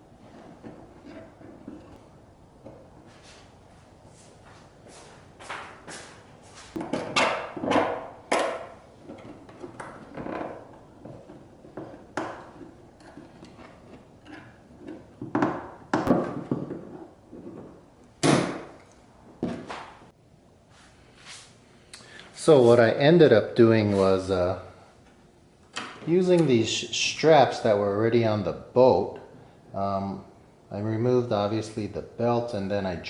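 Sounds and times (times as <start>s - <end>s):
hard plastic parts knocking and rattling: 6.8s - 18.8s.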